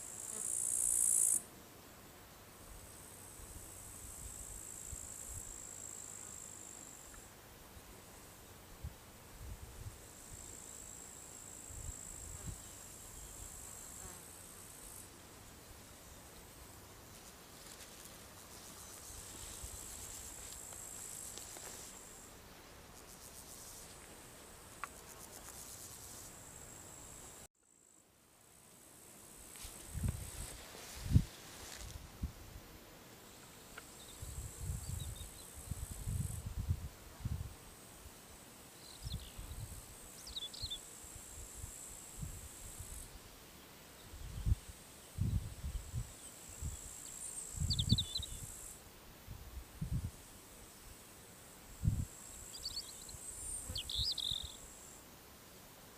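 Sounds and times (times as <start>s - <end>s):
crickets trilling: 0.0s - 1.4s, 44.2s - 48.8s, 51.8s - 55.0s
insects pulsed chirping: 0.0s - 1.4s, 44.2s - 48.8s, 51.8s - 55.0s
bird chirps: 53.7s - 54.6s.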